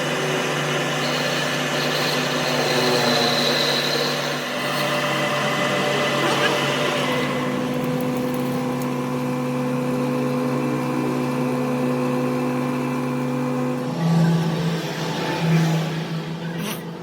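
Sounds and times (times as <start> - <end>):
machine motor humming: 4.2 - 17.0.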